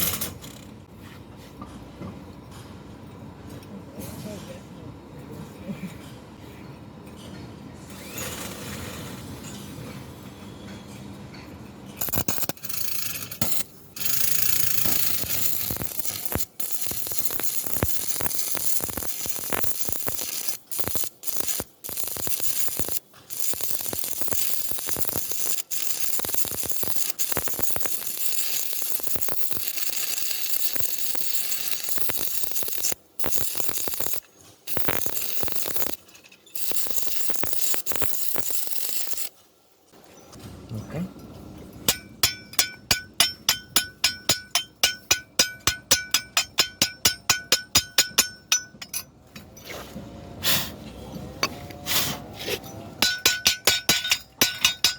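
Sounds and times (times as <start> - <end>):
welding arc crackling: 12.0 - 39.4, 41.9 - 49.0, 53.0 - 54.9.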